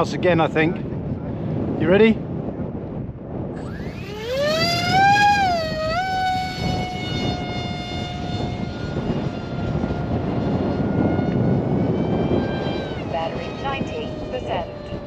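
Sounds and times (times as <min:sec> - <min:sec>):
wind noise on microphone: 0:00.0 - 0:15.0
electric motor and propeller whine: 0:03.3 - 0:15.0.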